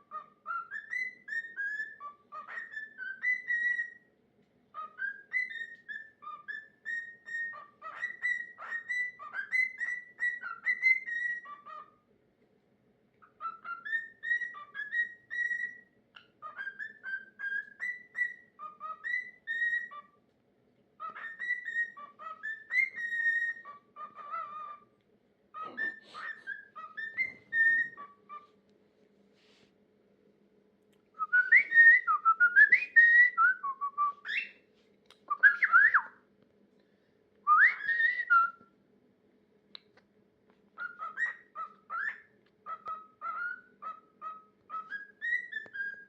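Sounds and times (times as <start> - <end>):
cockatiel whistling: 0.0 - 4.1, 4.7 - 11.9, 13.2 - 20.2, 21.0 - 24.9, 25.6 - 28.5, 31.2 - 34.6, 35.3 - 36.2, 37.4 - 38.7, 40.8 - 46.0.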